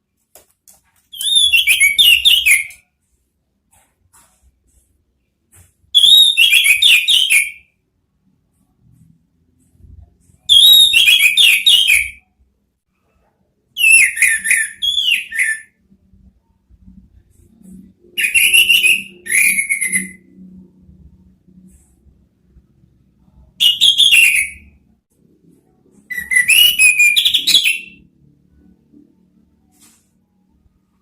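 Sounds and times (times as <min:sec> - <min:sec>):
thrush singing whistled notes: 0:01.1 - 0:02.8, 0:13.8 - 0:15.8, 0:18.2 - 0:20.3, 0:23.6 - 0:24.8, 0:26.1 - 0:28.0.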